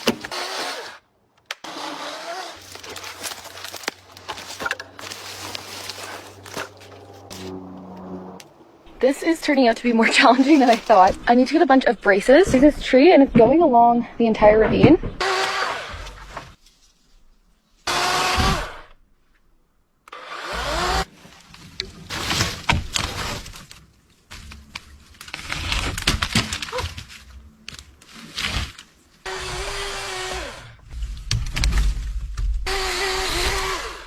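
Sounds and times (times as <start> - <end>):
branches cracking and breaking: 1.4 - 8.5, 21.0 - 34.0.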